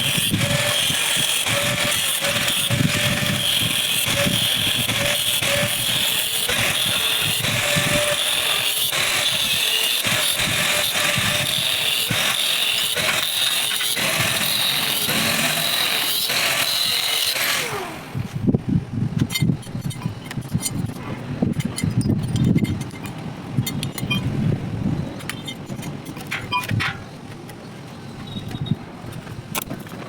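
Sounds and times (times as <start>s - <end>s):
electric power tool running: 0.0s - 18.4s
knocks and clatter: 25.2s - 27.1s.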